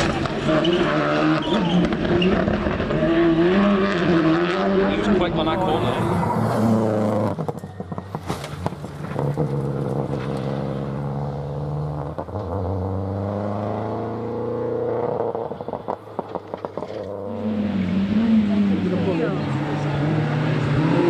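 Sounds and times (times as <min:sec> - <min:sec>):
exhaust popping and crackling: 0:00.0 - 0:11.1, 0:14.9 - 0:17.4
rally car engine accelerating: 0:00.0 - 0:21.0.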